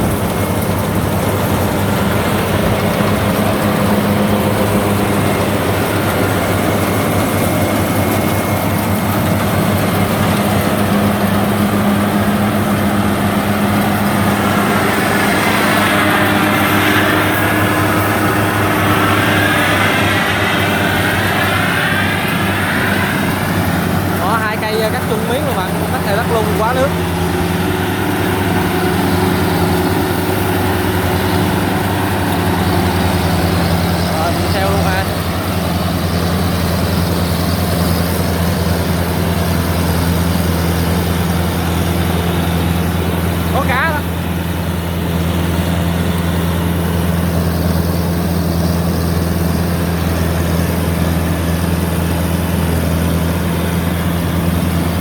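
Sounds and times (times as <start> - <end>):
harvester diesel engine running: 0.0 - 55.0.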